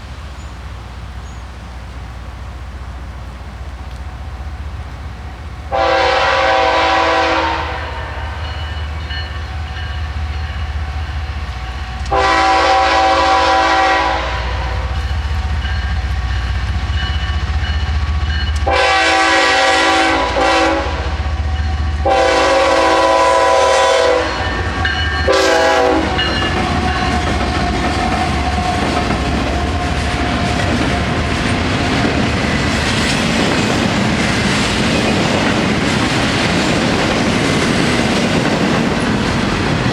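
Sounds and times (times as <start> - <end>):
low locomotive engine rumble: 0.0 - 39.9
train air horn blasts: 5.7 - 16.4, 18.6 - 28.2
train wheels clattering over rails: 24.3 - 39.9.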